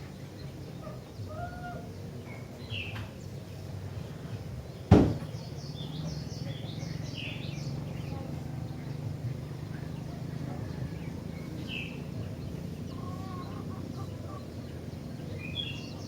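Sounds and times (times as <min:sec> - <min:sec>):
loud knock: 0:04.9 - 0:05.3.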